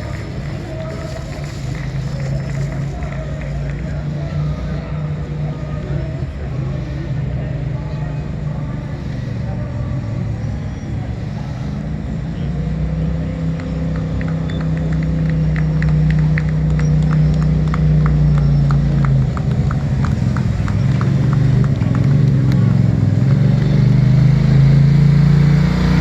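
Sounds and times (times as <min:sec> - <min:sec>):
engine rumbling: 0:00.0 - 0:26.0.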